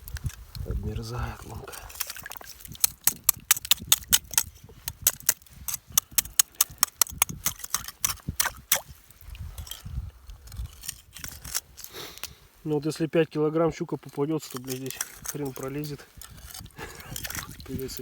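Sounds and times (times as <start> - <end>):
crunching on snow and ice: 0.0 - 3.3, 4.3 - 12.8, 13.8 - 18.0
wind on microphone: 0.0 - 11.8, 15.0 - 18.0.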